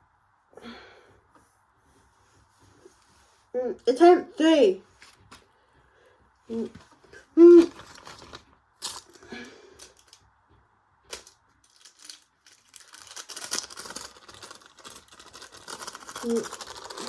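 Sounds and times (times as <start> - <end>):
toy washing machine rattling: 12.8 - 17.0.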